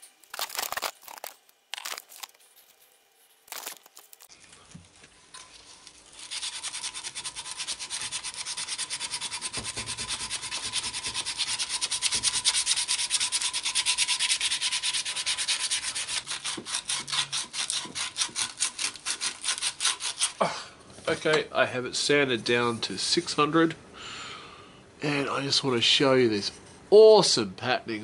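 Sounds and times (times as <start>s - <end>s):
sandpaper rasping on wood: 6.1s - 20.4s
faint steady hum: 18.6s - 28.0s.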